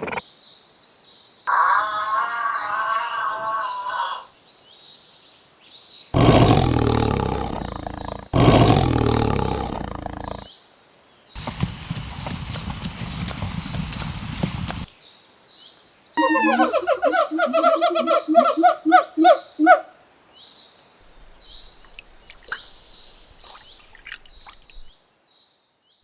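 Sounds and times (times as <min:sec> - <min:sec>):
long low animal calls: 0:01.5 - 0:04.3, 0:06.2 - 0:10.5, 0:16.2 - 0:19.9
high wavering animal call: 0:16.2 - 0:19.9.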